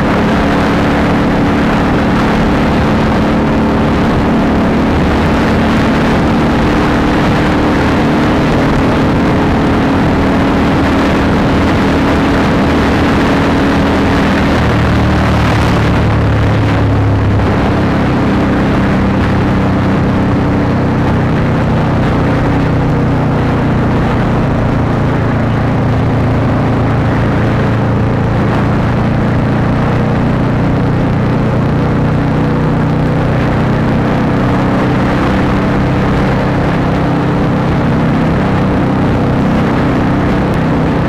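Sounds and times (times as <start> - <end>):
motorcycle engine running steadily: 0.0 - 41.0.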